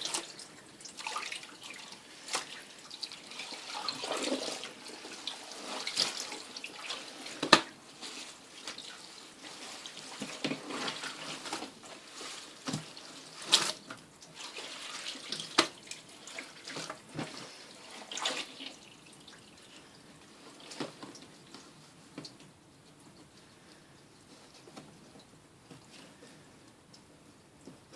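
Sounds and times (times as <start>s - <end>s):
water splashing in washing machine: 0.0s - 19.8s.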